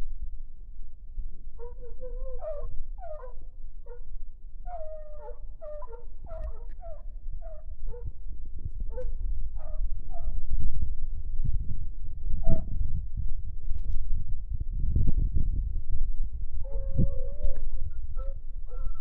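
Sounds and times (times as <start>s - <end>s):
low rumble: 0.0s - 19.0s
hunting dogs baying: 1.6s - 8.2s, 8.9s - 10.4s.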